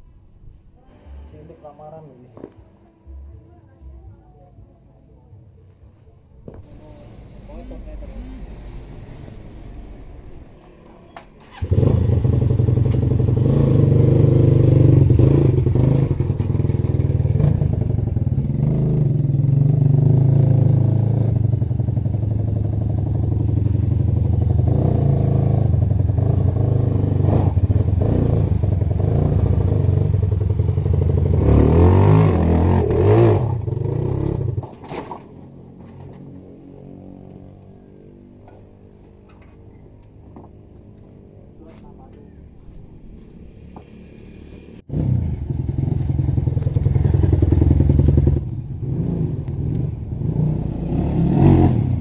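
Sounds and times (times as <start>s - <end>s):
motorcycle engine at high throttle: 11.4s - 34.8s, 43.6s - 52.0s.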